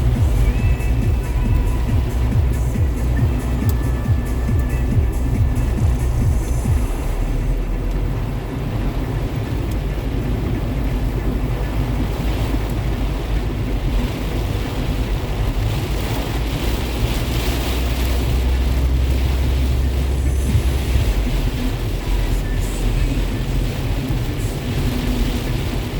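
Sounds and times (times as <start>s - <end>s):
rain falling: 0.0s - 25.9s
wind rumble on microphone: 0.0s - 25.9s.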